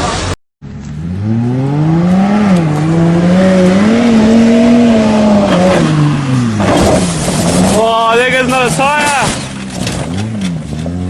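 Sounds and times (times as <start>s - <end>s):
vehicle engine revving hard: 1.0s - 7.8s.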